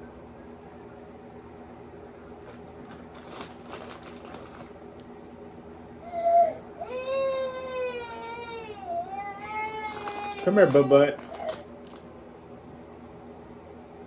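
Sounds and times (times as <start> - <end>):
young child crying: 6.0 - 11.7.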